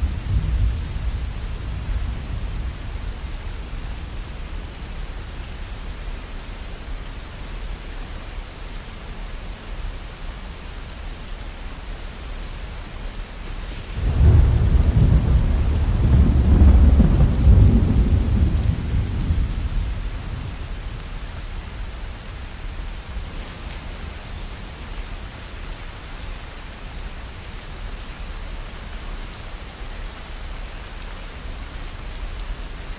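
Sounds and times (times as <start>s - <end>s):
deep thunder rumble: 0.0s - 4.2s, 13.6s - 25.8s
heavy rain: 0.0s - 32.9s.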